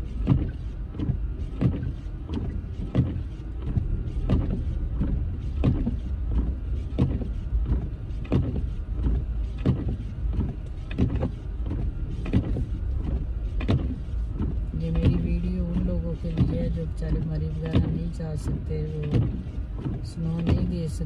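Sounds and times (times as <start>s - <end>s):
car engine and road rumble: 0.0s - 21.0s
windshield wipers knocking: 0.0s - 21.0s.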